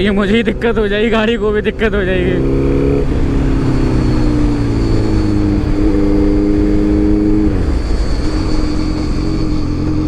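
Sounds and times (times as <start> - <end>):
motorcycle engine slowing down: 0.0 - 10.0.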